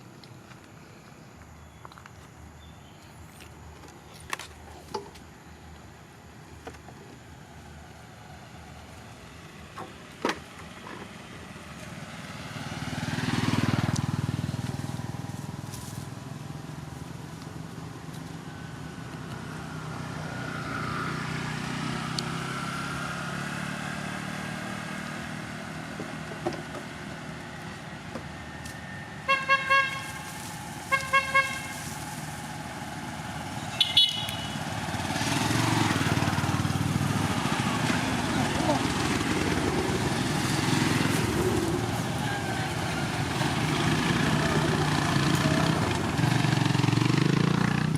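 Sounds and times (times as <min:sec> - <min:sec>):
vehicles passing by: 0:00.0 - 0:47.9
vehicle horn short beeps: 0:29.3 - 0:30.3, 0:30.9 - 0:31.8, 0:33.7 - 0:34.6.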